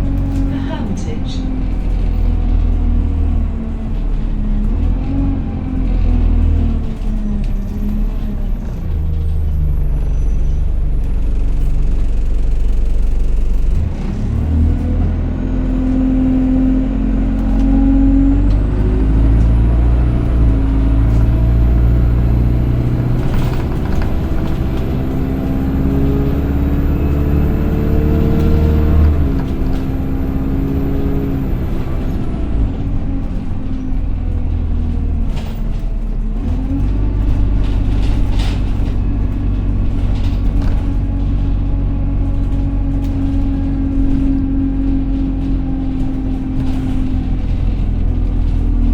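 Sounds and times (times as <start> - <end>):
high-pitched bus whine: 0.0 - 34.6
bus engine accelerating: 0.0 - 48.9.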